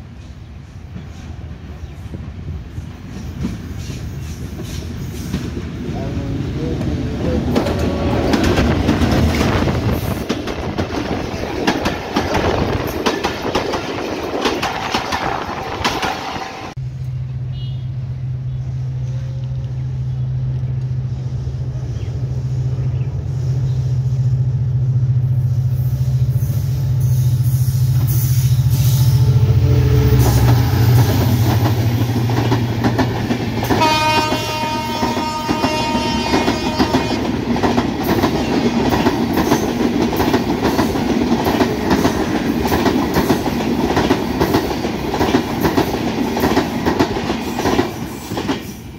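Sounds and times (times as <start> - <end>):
diesel locomotive engine drone: 0.0 - 48.9
train horn: 17.5 - 18.0, 28.7 - 30.9, 33.6 - 37.4.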